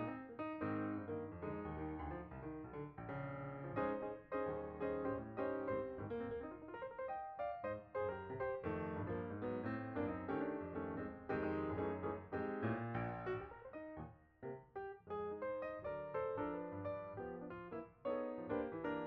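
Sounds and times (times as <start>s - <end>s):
solo piano playing: 0.0s - 19.0s.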